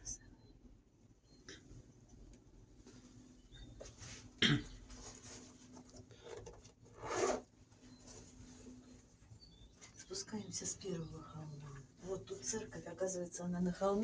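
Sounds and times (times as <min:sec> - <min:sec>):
person coughing: 0:04.4 - 0:04.8.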